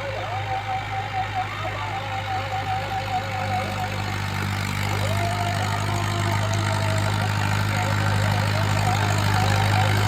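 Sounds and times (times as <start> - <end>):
wavering high tone: 0.0 - 7.0
tractor diesel engine running: 0.0 - 10.0.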